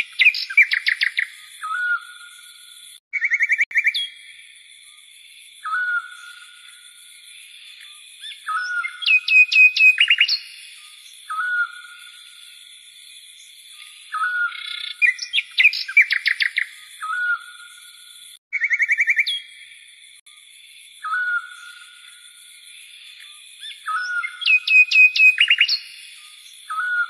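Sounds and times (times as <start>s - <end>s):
birds singing: 0.0s - 19.8s, 21.0s - 22.4s, 23.0s - 27.0s.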